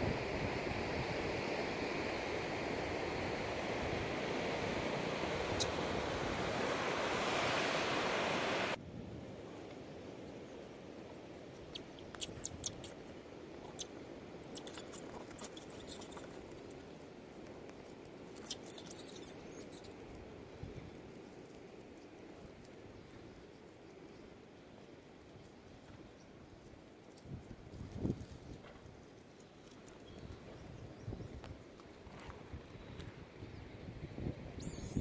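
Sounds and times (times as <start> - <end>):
ocean surf rushing: 0.0 - 8.8.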